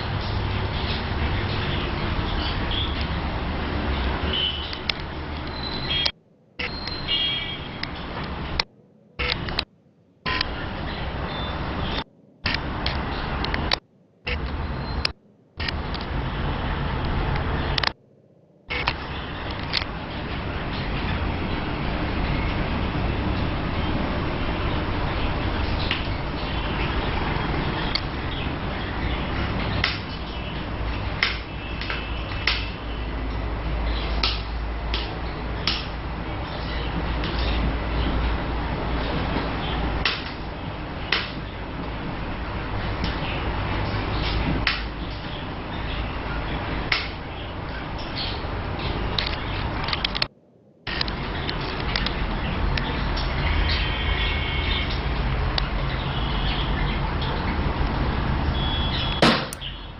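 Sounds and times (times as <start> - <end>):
faint bird chirps: 4.0 - 8.2, 10.3 - 12.1
sharp clicks: 7.8 - 9.7, 10.3 - 10.6, 12.0 - 16.2, 17.0 - 18.0, 18.7 - 19.9.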